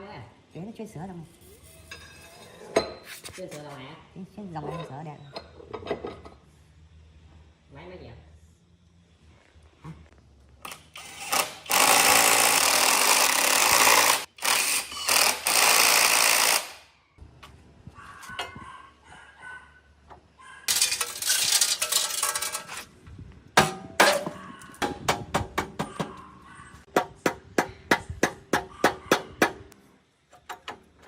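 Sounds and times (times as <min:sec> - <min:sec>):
power tool running: 0:10.7 - 0:16.8.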